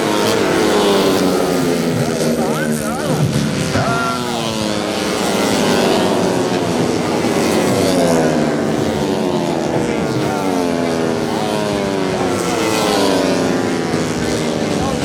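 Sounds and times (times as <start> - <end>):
motorcycles revving high: 0.0 - 15.0.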